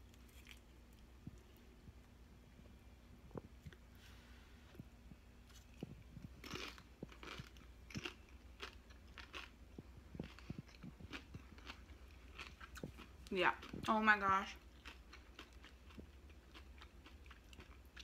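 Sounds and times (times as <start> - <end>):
chip crunching: 5.5 - 18.0.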